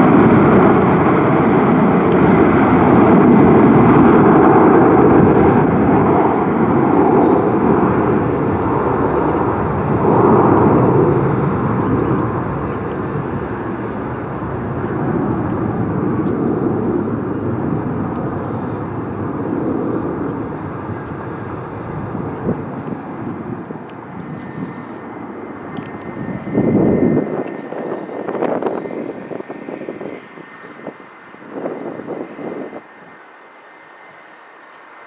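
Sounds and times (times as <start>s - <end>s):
airliner engine rumble: 0.0s - 35.0s
small birds chirping: 9.0s - 9.6s, 10.5s - 17.4s, 18.1s - 19.5s, 20.1s - 35.0s.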